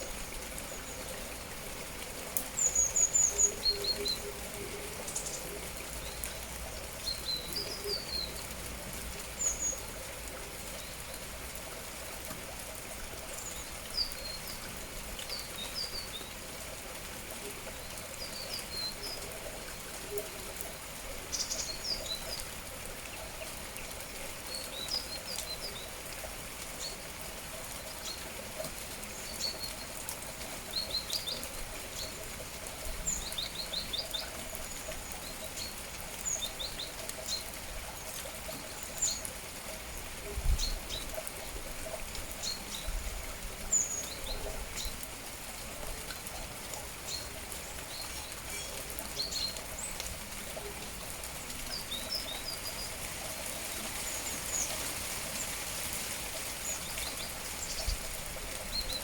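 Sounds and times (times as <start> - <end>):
rain falling: 0.0 - 59.0
small birds chirping: 51.4 - 59.0.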